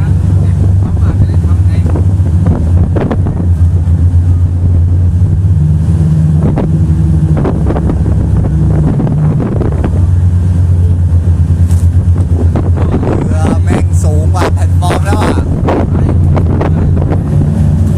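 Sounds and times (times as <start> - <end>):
motorboat engine running: 0.0 - 17.9
wind buffeting microphone: 0.0 - 17.9.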